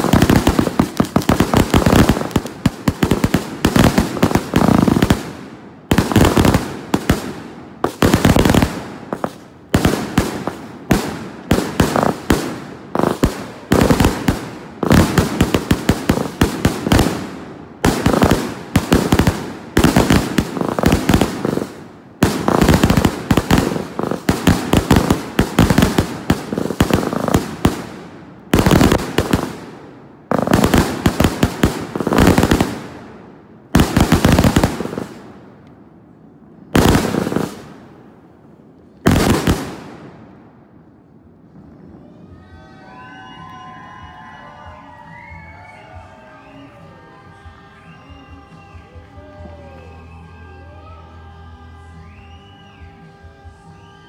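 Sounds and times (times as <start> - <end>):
fireworks bangs and crackling: 0.0 - 42.6.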